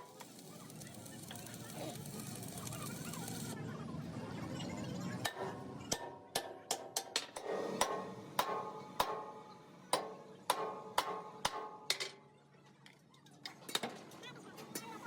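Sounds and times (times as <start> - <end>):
hammer striking metal: 5.2 - 12.2.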